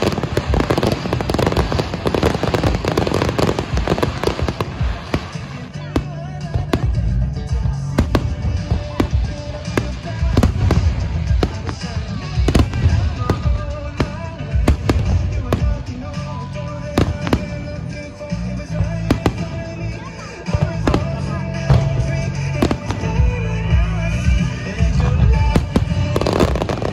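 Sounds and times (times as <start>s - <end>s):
fireworks bursting: 0.0s - 26.9s
music: 0.0s - 26.9s.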